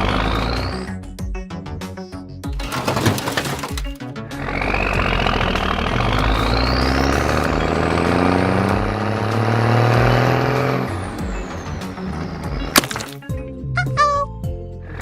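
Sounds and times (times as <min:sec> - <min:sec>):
cartoon engine revving whine: 0:04.3 - 0:12.4.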